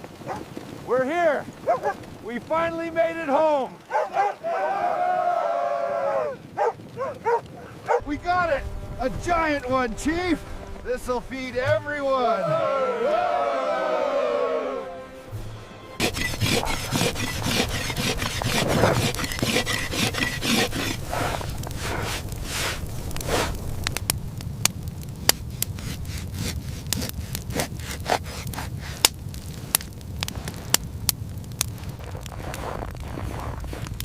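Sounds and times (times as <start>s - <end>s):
rough scraping and rasping: 7.4s - 12.4s, 15.3s - 24.0s, 25.3s - 30.8s, 31.7s - 34.0s
low steady rumble: 7.9s - 12.1s.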